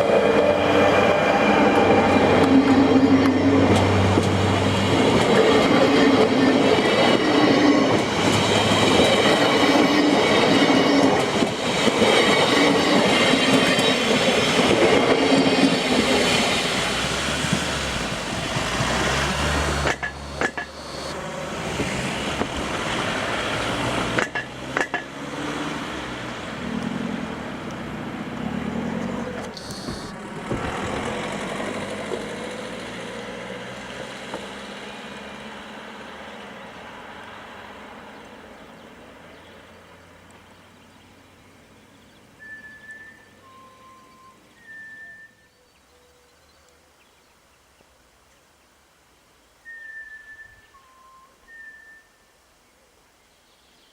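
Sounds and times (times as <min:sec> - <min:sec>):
train wheels clattering: 0:01.7 - 0:21.1, 0:24.0 - 0:25.2.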